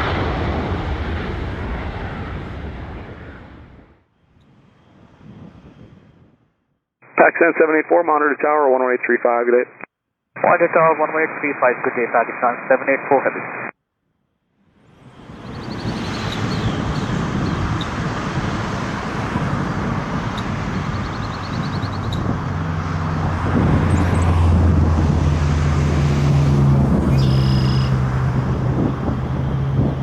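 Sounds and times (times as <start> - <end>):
low engine hum: 14.8 - 30.0
traffic rumble: 14.8 - 30.0.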